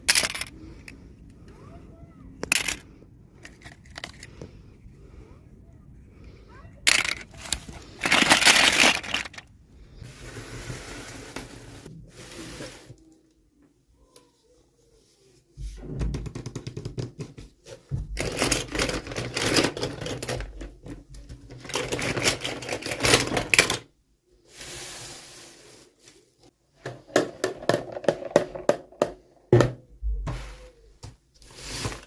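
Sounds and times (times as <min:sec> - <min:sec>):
plastic packaging clicking and crinkling: 0:00.0 - 0:00.6, 0:03.4 - 0:04.4, 0:06.9 - 0:09.5, 0:18.1 - 0:23.9.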